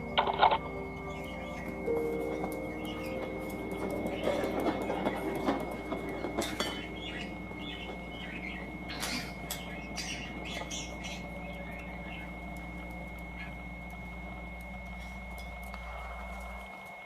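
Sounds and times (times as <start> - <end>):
faint high whine: 0.0 - 17.0
bird squawking and chirping: 6.3 - 12.4.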